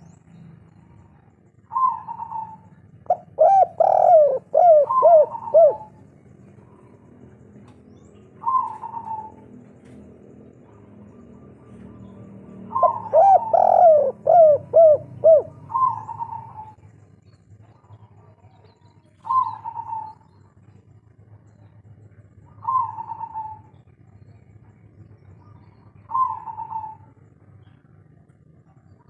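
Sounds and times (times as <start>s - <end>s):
dove cooing: 0.7s - 7.2s, 8.3s - 10.0s, 10.6s - 16.8s, 19.2s - 20.3s, 22.5s - 23.8s, 25.9s - 27.2s.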